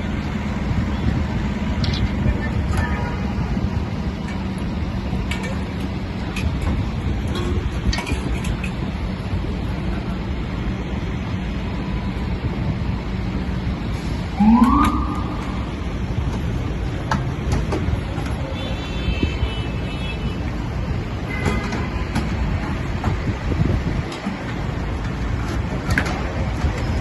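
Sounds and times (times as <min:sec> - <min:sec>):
city traffic: 0:00.0 - 0:27.0
truck engine rumble: 0:00.0 - 0:27.0
fire truck siren whoop: 0:14.3 - 0:15.8.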